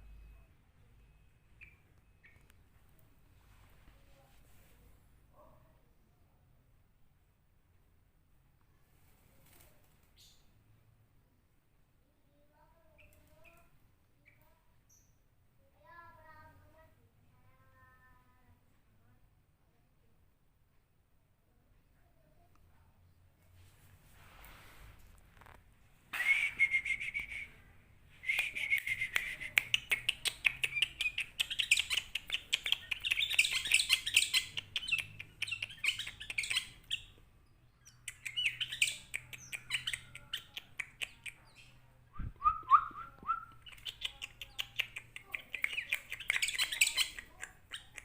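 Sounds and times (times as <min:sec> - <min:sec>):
bulbul chattering song: 0:28.2 - 0:37.2, 0:37.8 - 0:41.8, 0:42.4 - 0:48.0.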